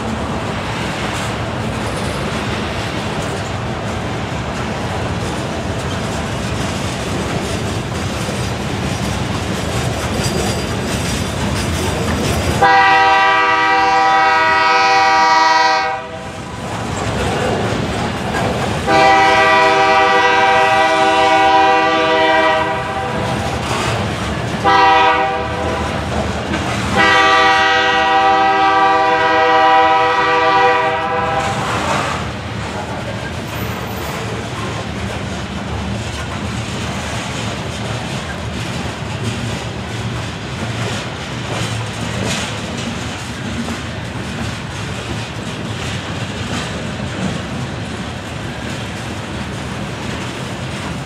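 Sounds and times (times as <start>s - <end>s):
train wheels on rails: 0.0s - 51.0s
locomotive horn blasts: 12.6s - 16.3s, 18.9s - 23.3s, 24.6s - 26.0s, 27.0s - 32.3s.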